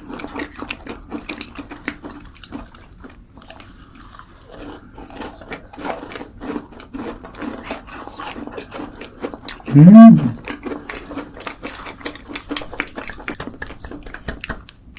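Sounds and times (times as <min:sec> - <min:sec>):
person chewing crunchy food: 0:00.1 - 0:14.1
wet mouth noises: 0:09.7 - 0:10.4.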